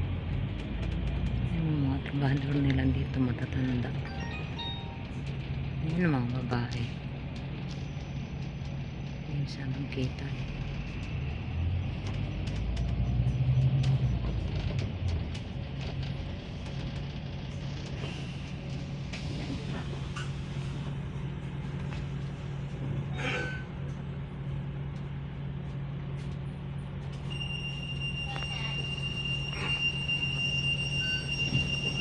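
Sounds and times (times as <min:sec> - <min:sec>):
bus engine hum: 0:00.0 - 0:32.0.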